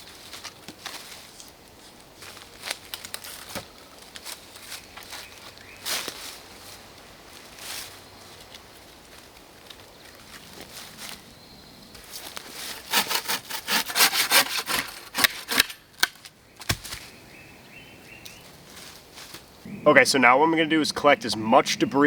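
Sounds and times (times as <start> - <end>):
hand saw cutting wood: 12.5 - 16.1.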